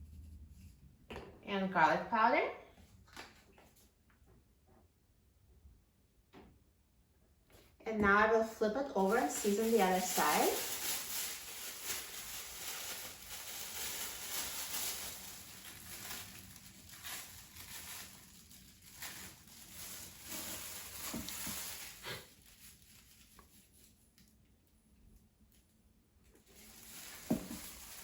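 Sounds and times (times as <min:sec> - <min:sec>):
seasoning container shaking: 0:09.1 - 0:16.8
grains falling on meat: 0:09.1 - 0:23.5, 0:26.5 - 0:28.0.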